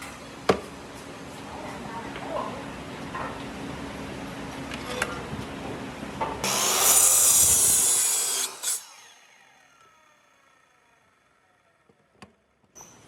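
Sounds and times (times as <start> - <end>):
power tool cutting wood: 6.4 - 11.7.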